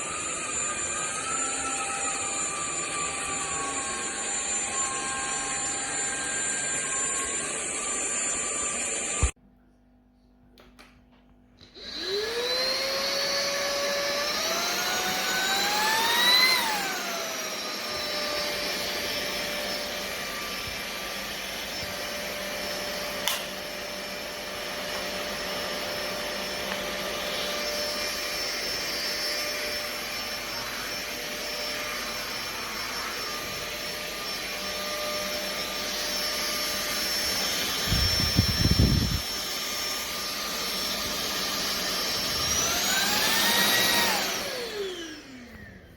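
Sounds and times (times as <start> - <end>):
vacuum motor whining: 0.0 - 9.4, 11.6 - 45.9
click: 23.2 - 23.5.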